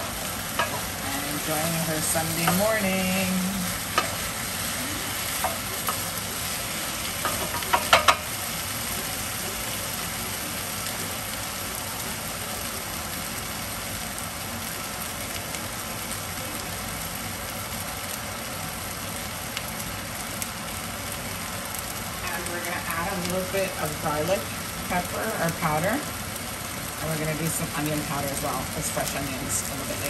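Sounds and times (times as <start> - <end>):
vegetables sizzling in a frying pan: 0.0 - 30.0.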